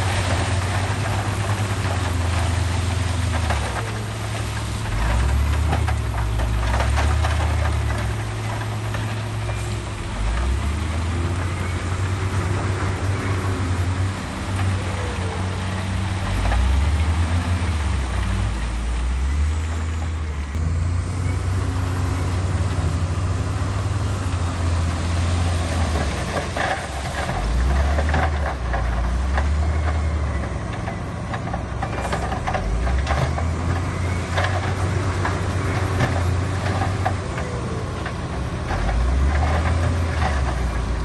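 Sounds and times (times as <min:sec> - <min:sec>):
heavy diesel machinery engine: 0:00.0 - 0:41.0.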